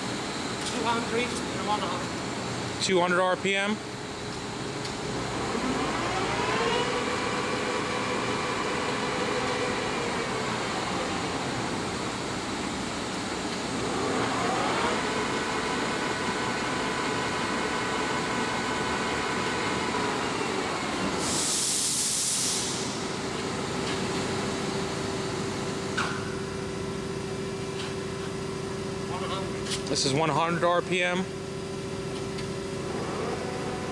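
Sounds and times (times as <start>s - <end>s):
lathe gear whine: 3.7s - 21.3s, 31.0s - 33.9s
motor hum: 4.5s - 21.2s
burst of hiss: 21.2s - 22.9s.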